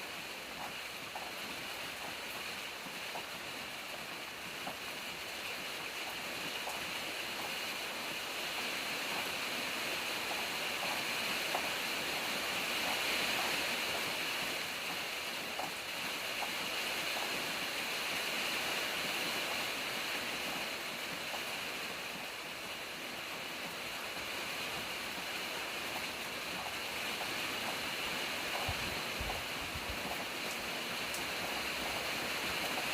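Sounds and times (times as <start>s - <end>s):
steady rain hiss: 0.0s - 32.9s
faint drip ticks: 0.6s - 2.5s, 3.1s - 3.3s.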